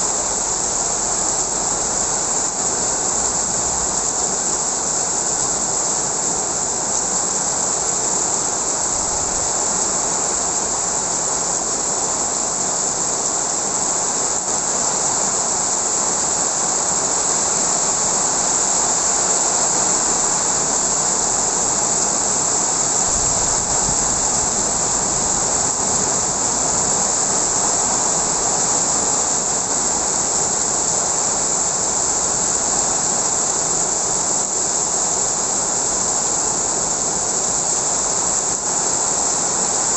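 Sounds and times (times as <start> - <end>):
heavy rain pouring: 0.0 - 39.9
strong wind: 0.0 - 39.9.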